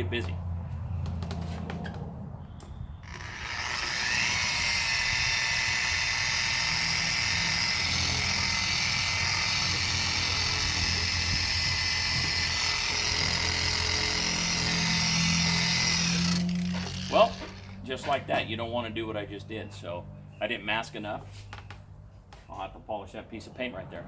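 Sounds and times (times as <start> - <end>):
power sander on plastic: 3.0 - 17.8.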